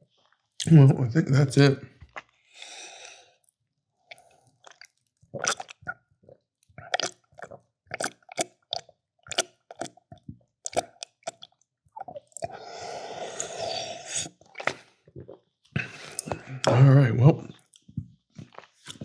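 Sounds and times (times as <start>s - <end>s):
person chewing food: 2.0s - 16.8s, 17.4s - 19.0s
soft breath: 12.5s - 14.2s.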